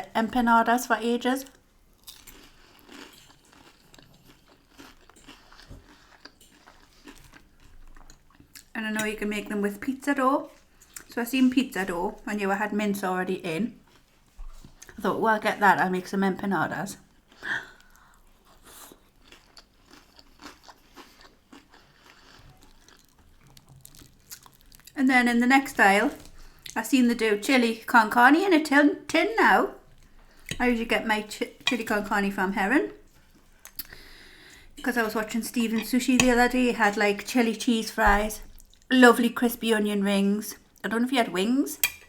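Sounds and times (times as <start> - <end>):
chewing crunchy food: 1.5 - 8.7, 17.1 - 25.0.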